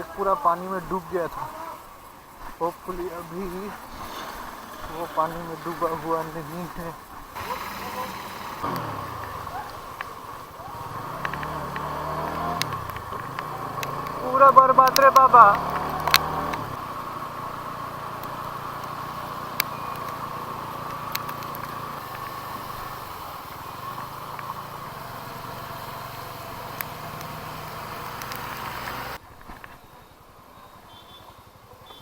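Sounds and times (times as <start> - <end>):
motorcycle engine running: 7.3 - 29.2
sharp clicks: 7.4 - 16.8, 18.2 - 22.4, 26.7 - 29.7.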